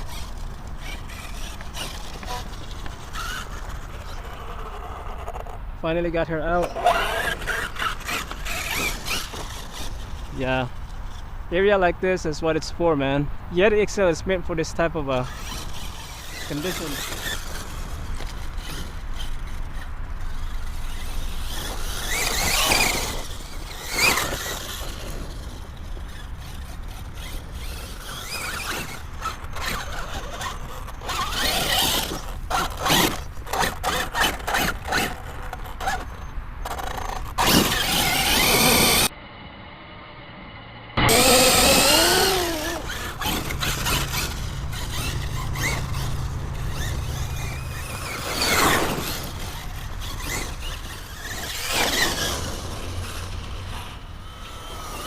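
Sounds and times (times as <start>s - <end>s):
rc truck motor whining: 0.0s - 11.5s, 13.6s - 55.0s
knocks and rattles over rough ground: 15.3s - 39.1s, 41.1s - 55.0s.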